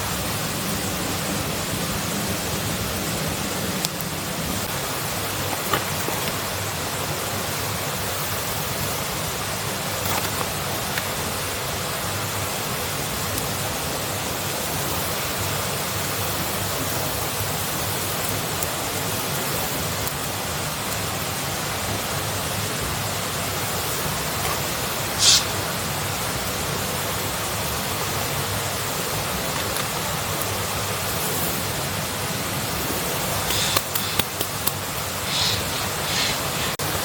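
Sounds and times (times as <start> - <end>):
steady rushing noise: 32.7 - 37.0.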